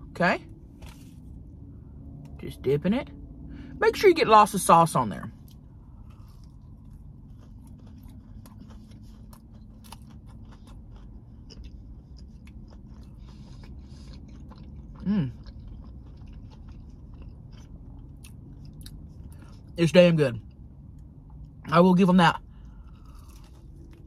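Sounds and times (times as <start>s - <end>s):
low background rumble: 0.0s - 24.0s
crunchy chewing: 5.4s - 19.7s, 22.5s - 24.0s.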